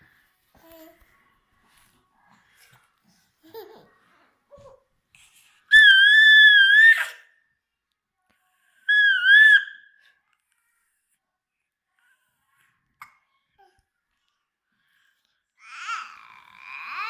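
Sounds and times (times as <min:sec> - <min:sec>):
baby babbling: 0:15.6 - 0:17.0.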